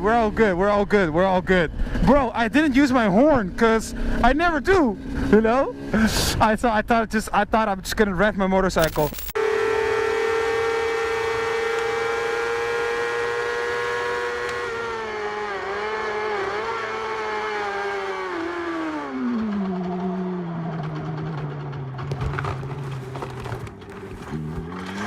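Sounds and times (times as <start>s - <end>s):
motorcycle engine revving: 10.3s - 22.0s, 23.6s - 25.0s.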